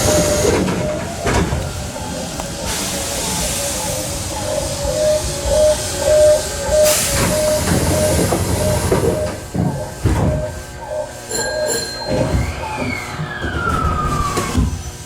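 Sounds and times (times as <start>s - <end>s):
train running by: 0.0s - 15.0s
level crossing bell dinging: 10.4s - 12.5s.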